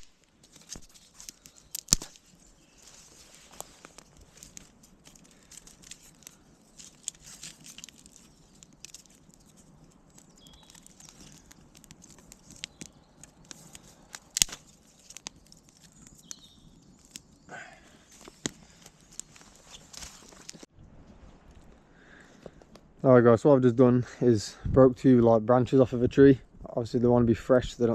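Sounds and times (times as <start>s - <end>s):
dry twigs crackling and snapping: 0.0s - 20.7s.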